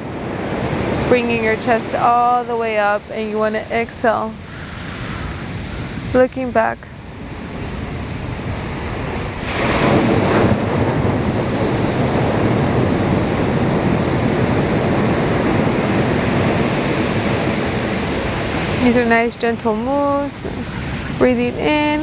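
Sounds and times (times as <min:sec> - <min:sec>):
ocean surf washing onto beach: 0:00.0 - 0:22.0
wave breaking: 0:00.0 - 0:22.0.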